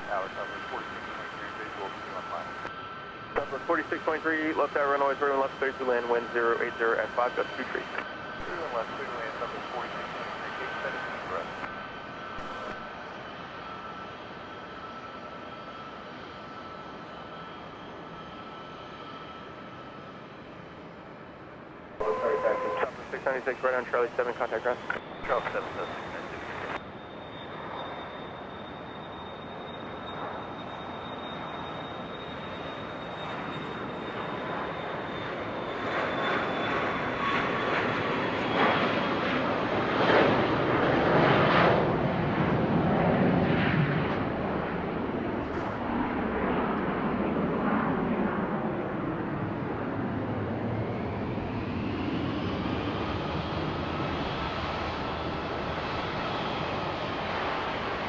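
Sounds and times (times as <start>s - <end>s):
high engine whine: 0.0s - 11.8s, 12.4s - 13.1s, 22.0s - 26.9s
jet engines passing: 0.0s - 14.2s, 22.0s - 26.8s, 30.2s - 58.0s.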